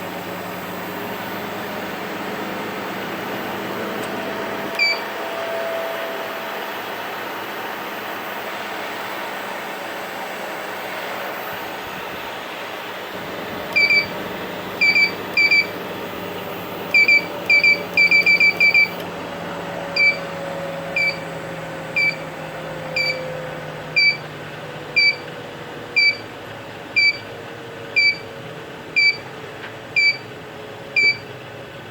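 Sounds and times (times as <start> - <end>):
treadmill motor humming: 12.8 - 29.3, 29.9 - 31.9
short electronic beeps: 13.7 - 14.1, 14.8 - 15.7, 16.9 - 19.0, 20.0 - 20.2, 21.0 - 21.3, 22.0 - 22.2, 23.0 - 23.2, 24.0 - 24.2, 25.0 - 25.2, 26.0 - 26.3, 27.0 - 27.2, 28.0 - 28.3, 29.0 - 29.2, 30.0 - 30.2, 31.0 - 31.3.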